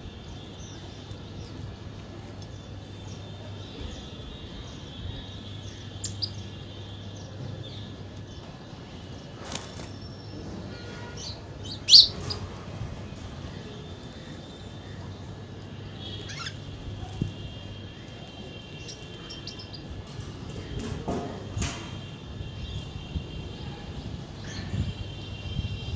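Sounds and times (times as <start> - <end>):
outdoor background noise: 0.0 - 25.9
birds chirping: 0.2 - 20.9.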